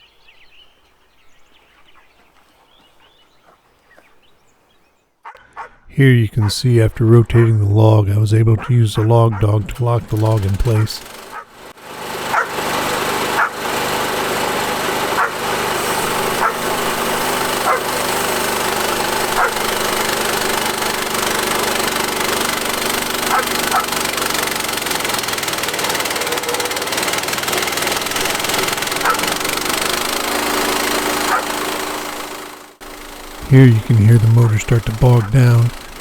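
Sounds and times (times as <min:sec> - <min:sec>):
bandsaw mill cutting log: 0:10.1 - 0:36.0.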